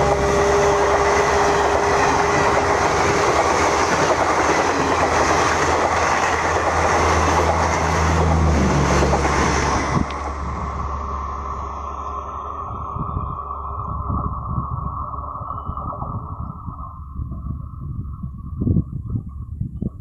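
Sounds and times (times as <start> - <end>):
train wheels rushing on rail: 0.0 - 15.0.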